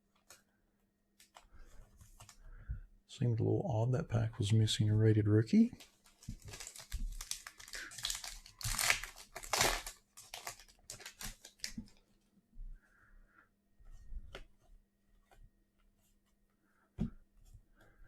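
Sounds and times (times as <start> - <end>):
plastic wrapper tearing and crinkling: 5.8 - 11.8.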